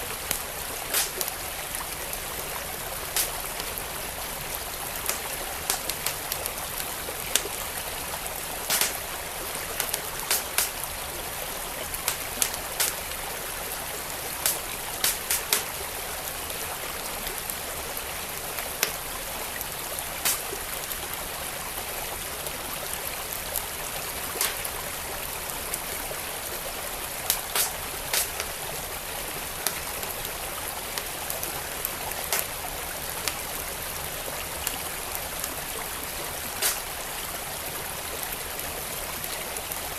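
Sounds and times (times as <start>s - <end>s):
wood fire crackling: 0.0s - 16.7s, 18.3s - 21.1s, 23.1s - 25.2s, 26.6s - 33.5s, 36.4s - 37.2s
stream flowing: 0.0s - 39.9s.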